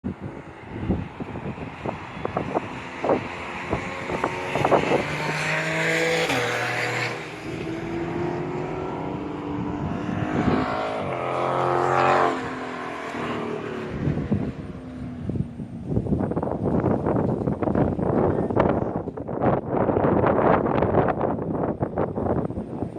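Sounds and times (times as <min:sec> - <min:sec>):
wind buffeting microphone: 0:00.0 - 0:22.9
loud car exhaust revving: 0:00.1 - 0:16.3.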